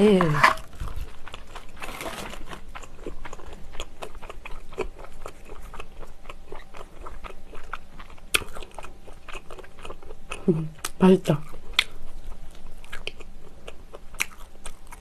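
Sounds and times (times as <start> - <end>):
person chewing bread roll: 0.6 - 15.0.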